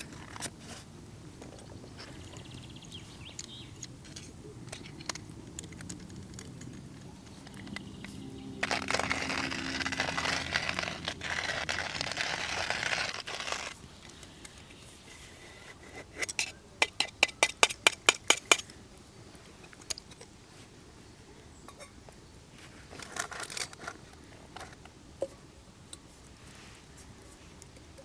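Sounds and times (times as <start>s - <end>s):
hand coffee grinder crunching beans: 4.1s - 13.8s.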